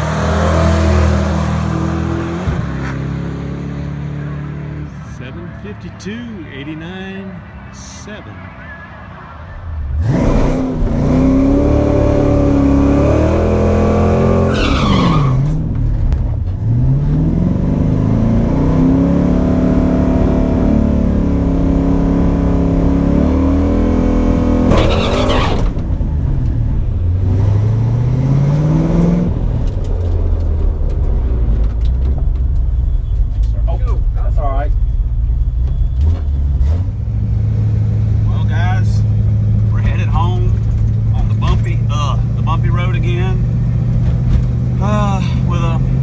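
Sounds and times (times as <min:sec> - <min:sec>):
car engine revving hard: 0:00.0 - 0:08.9, 0:09.5 - 0:15.8, 0:16.6 - 0:26.0, 0:36.6 - 0:46.0.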